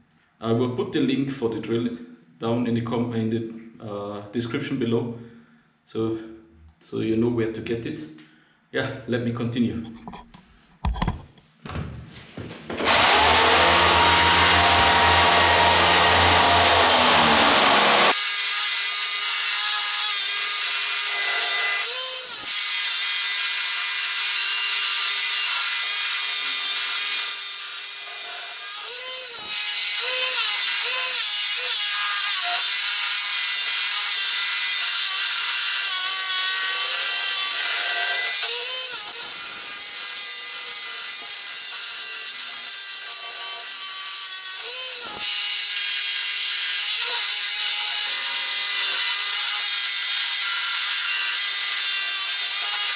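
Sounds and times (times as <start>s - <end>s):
power drill boring into concrete: 12.8s - 52.9s.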